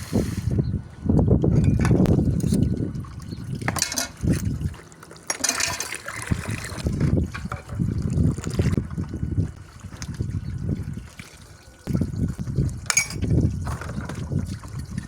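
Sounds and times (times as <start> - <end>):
water hiss: 0.0 - 0.6
water splashing and trickling: 0.1 - 15.0.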